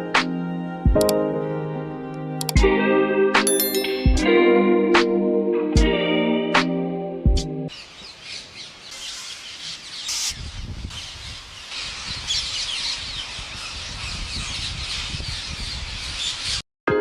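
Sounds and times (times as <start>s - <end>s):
birds chirping and squawking: 7.7s - 16.6s.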